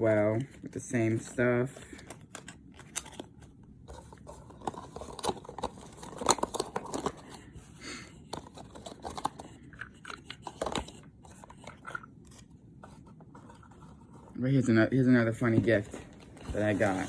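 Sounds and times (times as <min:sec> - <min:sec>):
plastic packaging crinkling: 0:04.0 - 0:07.6, 0:15.6 - 0:17.0.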